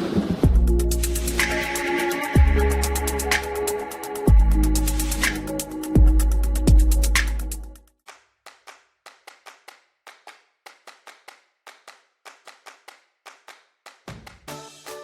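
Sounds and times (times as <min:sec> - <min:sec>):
music with bass line: 0:00.4 - 0:07.8
hand claps: 0:08.0 - 0:15.0.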